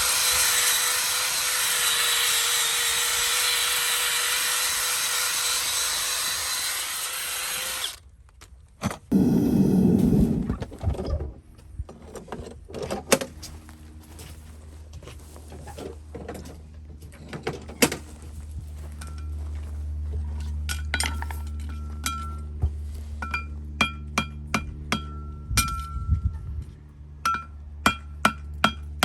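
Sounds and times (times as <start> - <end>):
power tool motor whining: 0.0 - 8.0, 9.1 - 10.5
loud rough burst: 9.1 - 10.6.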